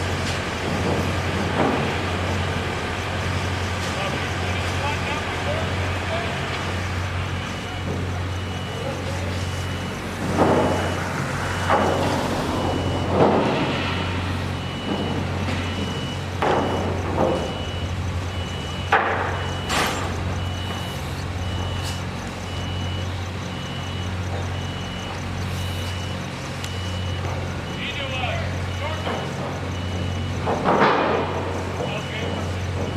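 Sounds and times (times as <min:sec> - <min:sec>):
idling engine hum: 0:00.0 - 0:28.7
backup alarm beeping: 0:00.0 - 0:32.9.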